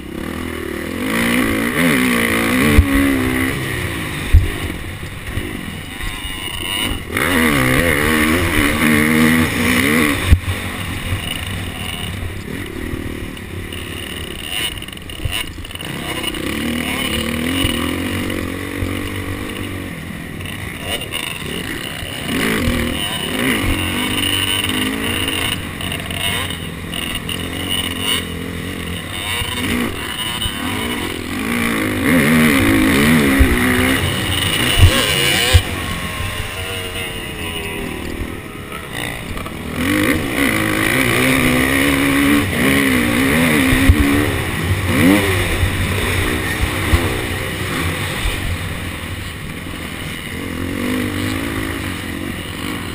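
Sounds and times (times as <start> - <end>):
motocross engine revving: 0.0 - 52.9
sharp thumps: 20.5 - 48.8.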